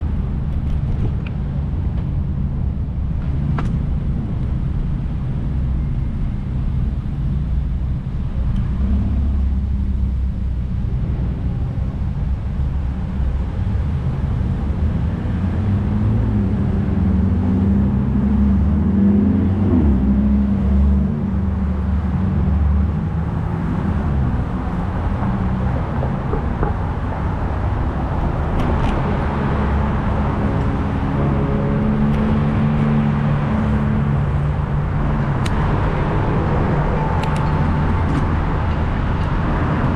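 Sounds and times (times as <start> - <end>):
cars driving by: 0.0 - 39.9
vehicle engine hum: 0.0 - 39.9.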